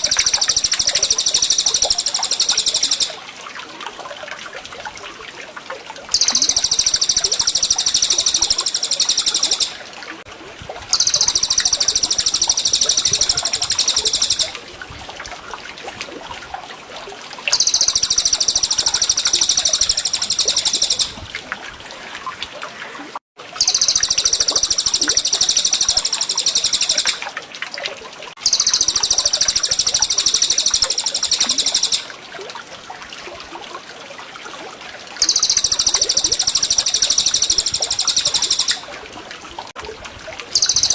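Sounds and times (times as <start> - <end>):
songbird high-pitched trill: 0.0 - 3.2, 6.2 - 9.8, 10.9 - 14.6, 17.5 - 21.2, 23.6 - 27.2, 28.4 - 32.1, 35.2 - 38.8, 40.6 - 40.9
running water trickling: 0.0 - 40.9.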